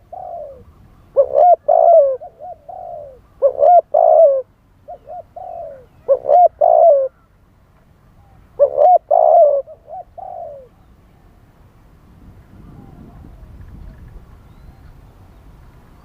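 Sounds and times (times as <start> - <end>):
dove cooing: 0.0 - 7.3, 8.2 - 10.8.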